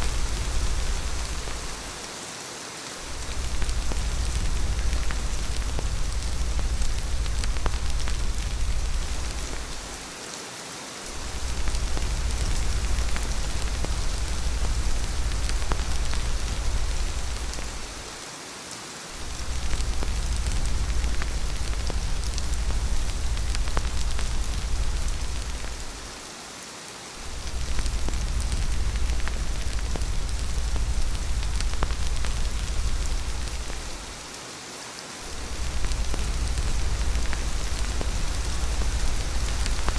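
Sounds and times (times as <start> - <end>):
deep low rumble: 0.0 - 1.9, 3.1 - 10.0, 11.2 - 18.1, 19.2 - 26.0, 27.2 - 34.2, 35.3 - 39.9
rain falling: 0.0 - 39.9.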